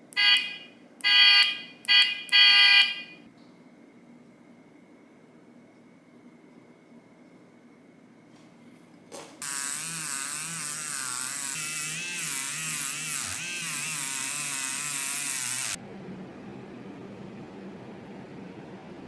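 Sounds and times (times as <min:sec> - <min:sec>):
power tool whine: 0:09.4 - 0:15.8.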